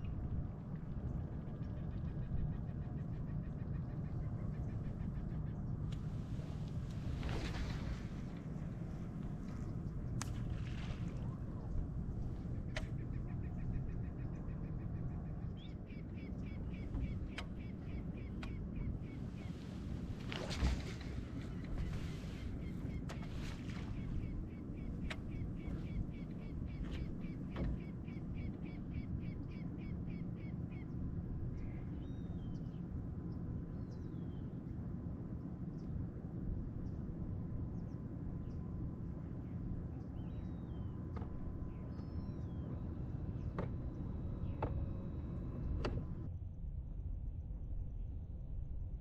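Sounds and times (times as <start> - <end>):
low rumble of wind and water: 0.0 - 49.0
bird calling: 11.1 - 30.9
low rumble: 30.8 - 49.0.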